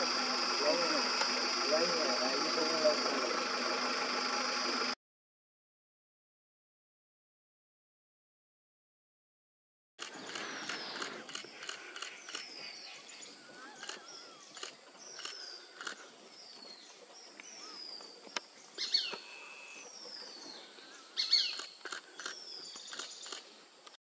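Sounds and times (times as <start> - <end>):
sharp clicks: 10.0 - 12.5, 21.5 - 24.0.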